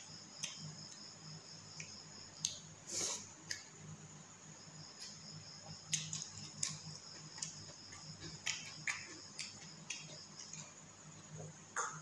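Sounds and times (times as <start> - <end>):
faint low hum: 0.0 - 12.0
wet chewing and smacking: 4.9 - 10.8.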